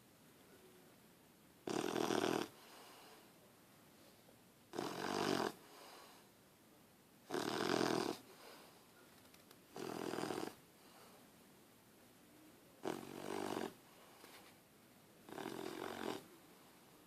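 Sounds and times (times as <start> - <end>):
puppy snoring: 1.6 - 2.9, 4.7 - 6.2, 7.3 - 8.4, 9.7 - 10.6, 12.8 - 13.8, 15.2 - 16.3.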